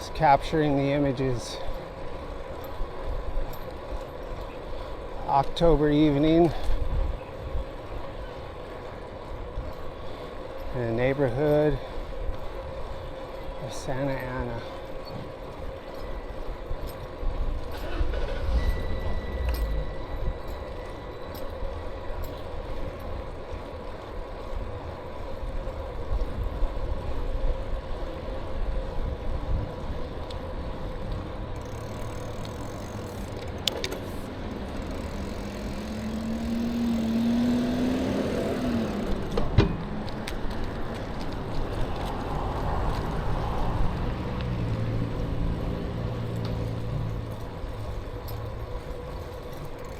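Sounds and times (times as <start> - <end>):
road noise: 0.0 - 49.9
wind rumble: 6.6 - 10.8, 14.8 - 49.9
short rising whine: 17.8 - 21.0.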